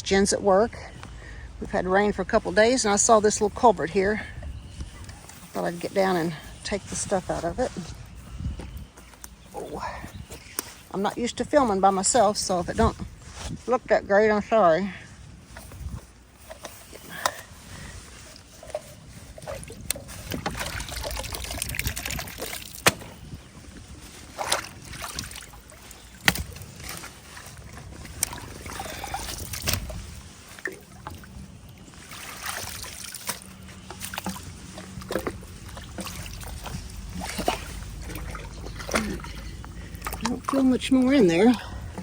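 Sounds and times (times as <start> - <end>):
water sloshing and splashing: 15.0 - 42.0
sharp knocks and clicks of debris: 19.8 - 23.3, 26.0 - 27.1.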